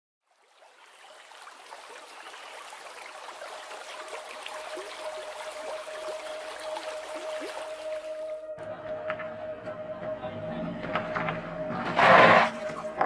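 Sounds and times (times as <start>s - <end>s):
babbling stream: 0.2s - 8.4s
steady held music tone: 4.0s - 13.0s.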